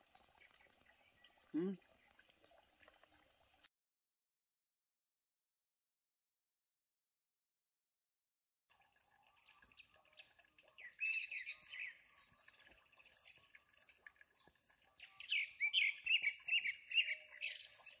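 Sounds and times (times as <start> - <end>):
small birds chirping: 0.0 - 3.7, 8.7 - 18.0.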